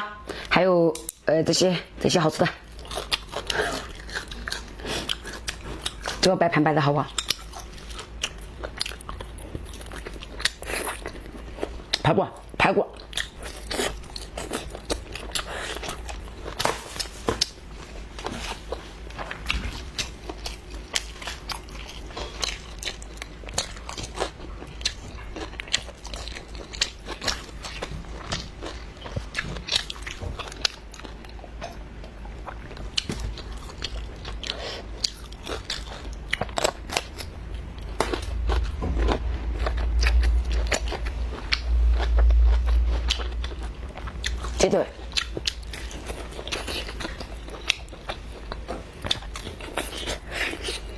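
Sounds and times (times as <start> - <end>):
person chewing: 2.6 - 6.3, 7.0 - 50.9
low rumble: 36.0 - 46.6.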